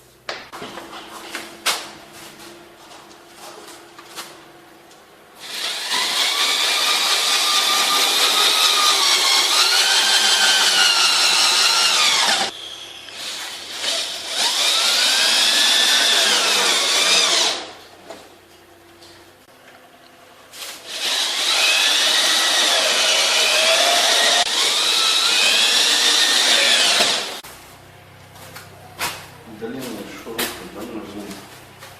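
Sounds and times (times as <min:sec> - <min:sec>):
electric power tool motor whine: 0:05.4 - 0:17.7, 0:20.9 - 0:27.4.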